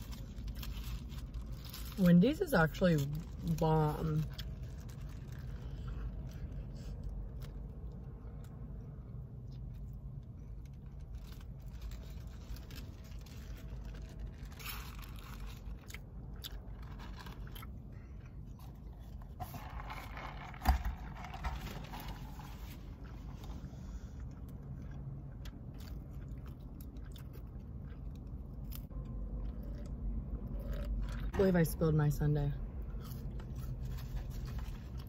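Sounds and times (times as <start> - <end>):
paper wrapper crinkling: 0.0 - 6.3, 10.6 - 16.0, 16.7 - 17.7, 19.1 - 23.5
close-up chewing: 4.2 - 31.3.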